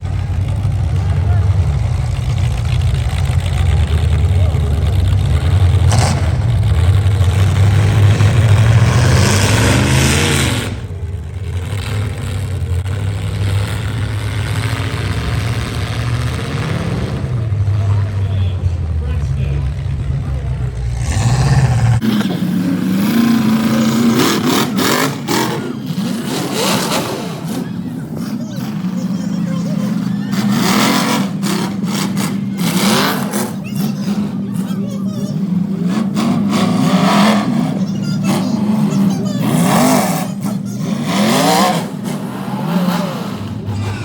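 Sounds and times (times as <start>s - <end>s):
truck engines revving: 0.0s - 44.0s
steady drone: 41.0s - 44.0s.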